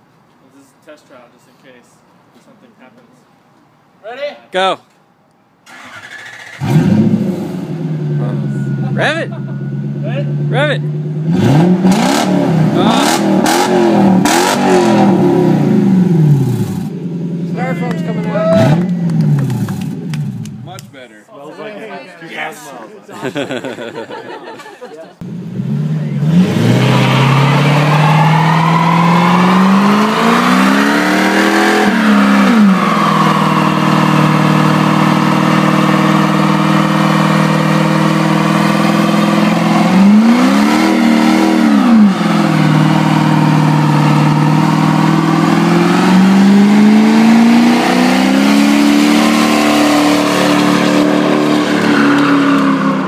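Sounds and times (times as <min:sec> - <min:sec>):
car engine revving high: 0:05.7 - 0:17.0, 0:18.4 - 0:20.6, 0:25.2 - 0:53.0.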